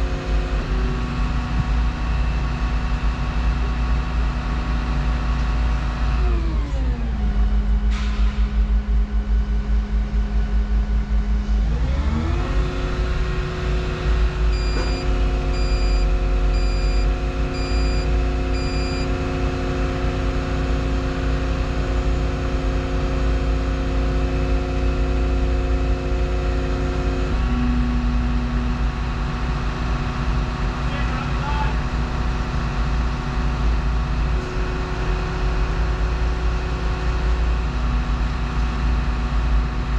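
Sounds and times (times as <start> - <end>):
excavator diesel engine revving: 0.0 - 39.9
short electronic beeps: 14.5 - 19.1.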